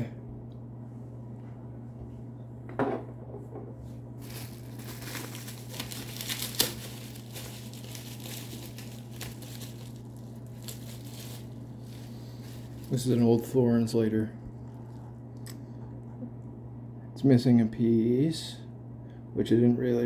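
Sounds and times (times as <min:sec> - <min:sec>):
packaging crinkling: 0:04.2 - 0:13.6.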